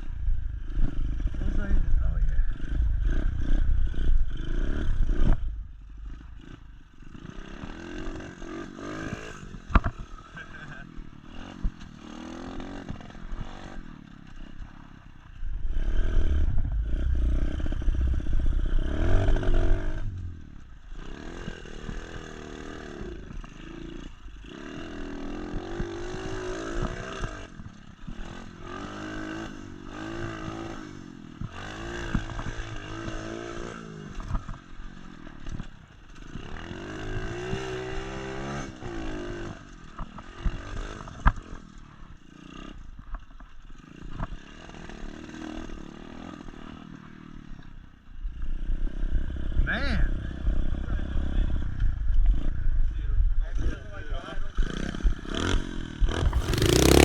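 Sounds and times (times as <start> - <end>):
motorbike engine revving: 0.0 - 34.6, 54.6 - 57.0.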